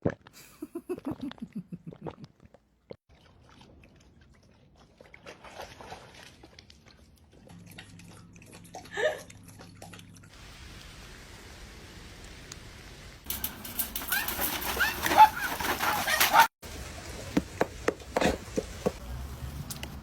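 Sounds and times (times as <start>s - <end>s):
dog lapping water: 3.1s - 10.3s.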